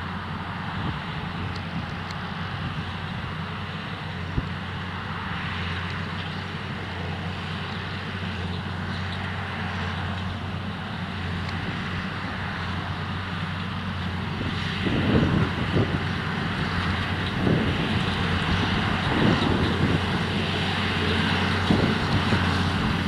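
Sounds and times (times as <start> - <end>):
tractor engine running: 0.0 - 23.0
wind buffeting microphone: 14.0 - 23.0.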